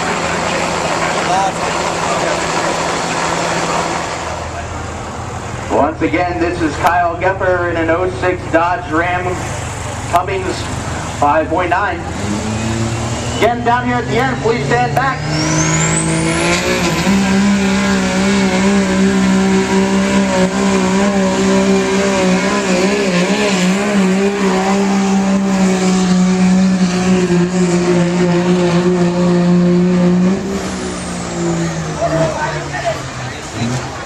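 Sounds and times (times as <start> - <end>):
diesel engine under heavy load: 0.0 - 34.0
turbo whistle: 12.6 - 13.7.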